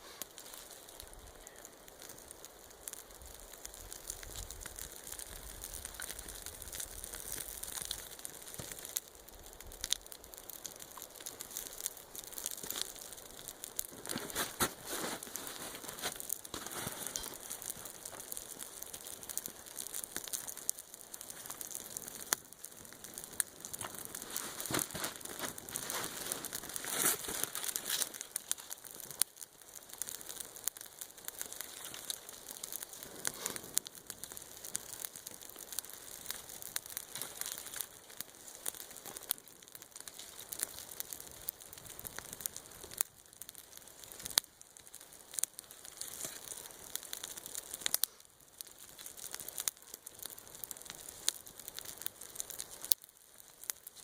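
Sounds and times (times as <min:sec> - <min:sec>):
campfire crackling and popping: 0:00.0 - 0:54.0
crinkling and rustling of handling: 0:13.9 - 0:20.3, 0:22.9 - 0:29.2.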